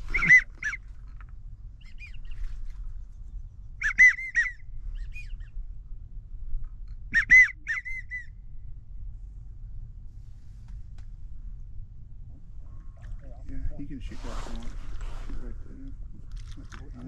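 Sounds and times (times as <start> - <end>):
wigeon whistles: 0.0 - 0.8, 3.8 - 5.5, 7.1 - 8.4.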